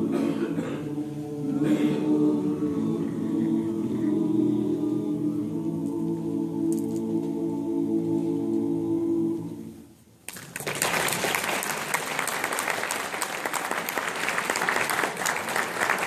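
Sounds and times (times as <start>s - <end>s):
audience applause: 10.3s - 16.0s.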